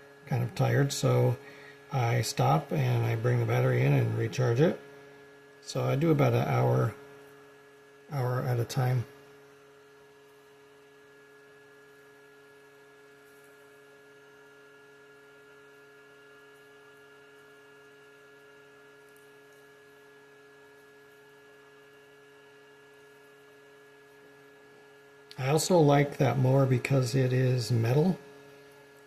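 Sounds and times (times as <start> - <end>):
steady whining tones: 0.0 - 10.4
battery charger fan hum: 0.0 - 29.0.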